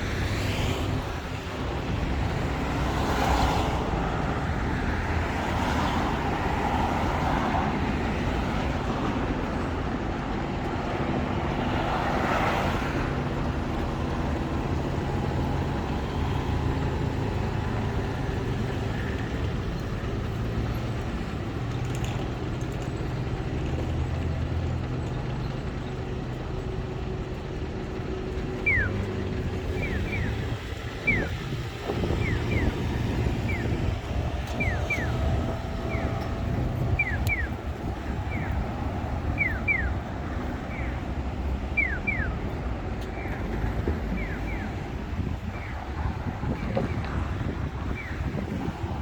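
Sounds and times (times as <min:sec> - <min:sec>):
cars passing: 0:00.0 - 0:49.0
traffic engine hum: 0:00.0 - 0:49.0.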